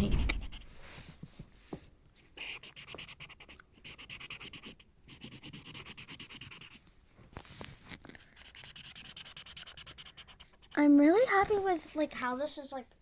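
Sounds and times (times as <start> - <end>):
marker scribbling on paper: 0.1 - 0.8, 2.4 - 6.8, 8.2 - 12.0.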